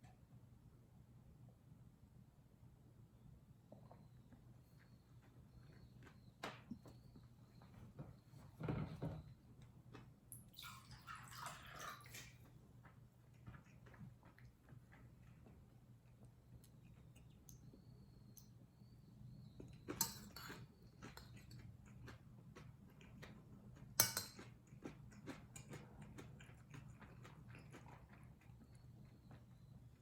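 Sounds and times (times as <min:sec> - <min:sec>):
person chewing food: 0:12.4 - 0:18.2, 0:19.4 - 0:30.0.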